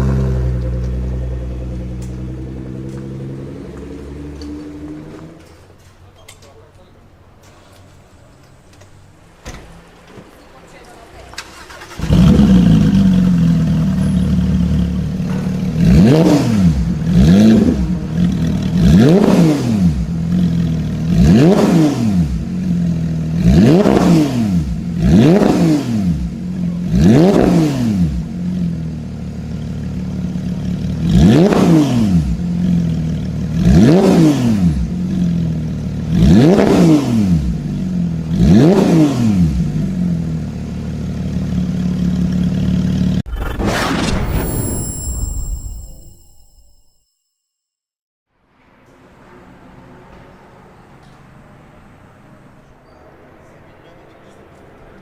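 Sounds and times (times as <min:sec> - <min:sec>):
sports car engine revving: 0:00.0 - 0:05.5, 0:11.6 - 0:43.5.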